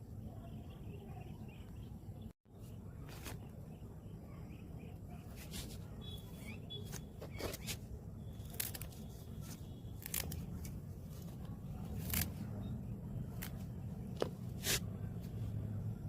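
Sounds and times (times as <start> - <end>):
scissors snipping stems: 8.4 - 10.8, 11.7 - 12.5, 13.3 - 14.9.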